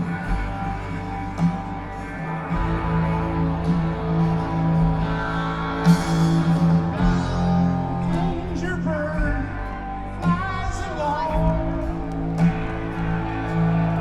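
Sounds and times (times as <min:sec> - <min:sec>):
person singing: 0:00.0 - 0:14.0
rock band playing: 0:00.0 - 0:14.0.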